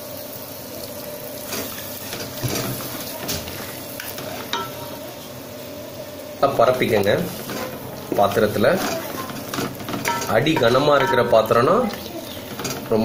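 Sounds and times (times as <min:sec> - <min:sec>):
chicken sizzling in a pot: 0:00.0 - 0:13.0
spatula scraping a pot: 0:07.2 - 0:11.2.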